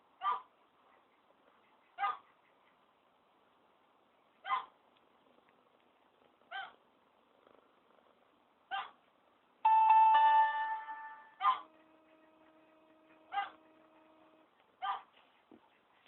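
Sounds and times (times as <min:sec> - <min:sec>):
piano notes: 0:09.7 - 0:12.0
pet crying: 0:13.3 - 0:13.6.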